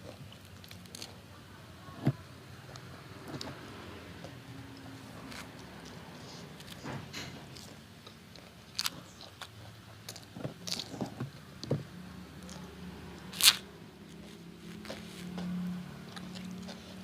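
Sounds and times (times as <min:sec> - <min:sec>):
person chewing crunchy food: 0:04.2 - 0:11.4, 0:13.4 - 0:17.0.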